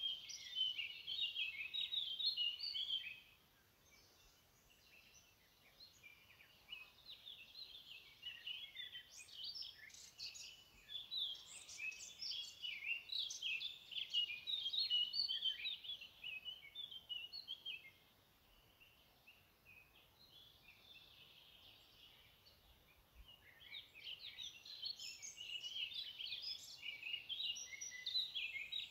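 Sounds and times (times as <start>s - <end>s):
birds chirping and trilling: 0.0s - 28.9s.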